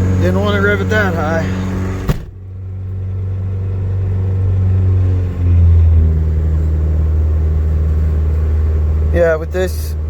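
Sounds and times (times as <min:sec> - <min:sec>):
car engine fast idle: 0:00.0 - 0:02.4.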